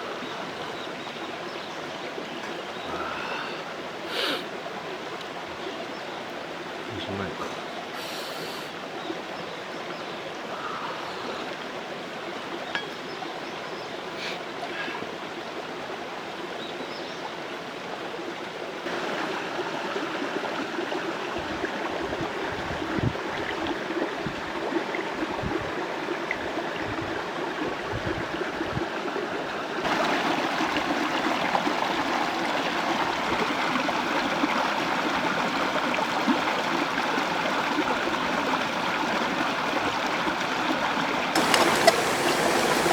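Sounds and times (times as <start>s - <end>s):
stream rushing over rocks: 17.3s - 42.9s.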